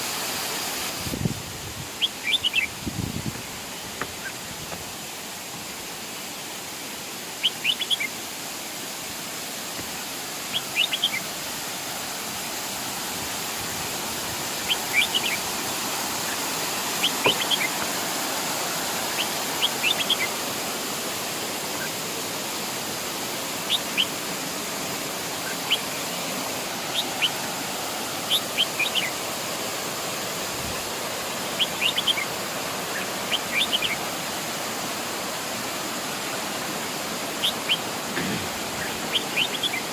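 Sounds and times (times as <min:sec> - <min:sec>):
waterfall rushing: 0:00.0 - 0:39.9
bird chirping: 0:10.5 - 0:11.2, 0:17.0 - 0:17.8.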